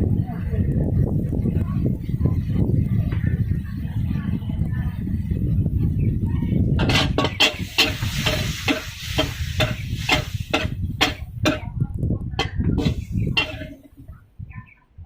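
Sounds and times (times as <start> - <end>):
spatula scraping a wok: 6.8 - 11.7, 12.4 - 14.0
food sizzling: 7.2 - 11.7.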